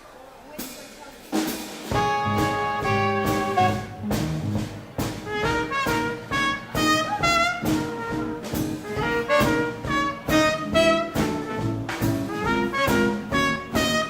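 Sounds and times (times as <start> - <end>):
steady drum beat: 0.6 - 14.0
trombones: 1.7 - 14.0
trumpets: 1.8 - 14.0
saxophone: 1.9 - 4.2, 5.2 - 14.0.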